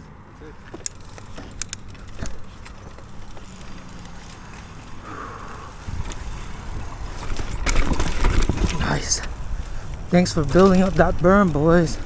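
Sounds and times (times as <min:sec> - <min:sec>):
bike tyres on dirt: 0:00.0 - 0:12.0
bike clicks and rattles: 0:00.4 - 0:12.0
wind rumble on microphone: 0:05.7 - 0:12.0.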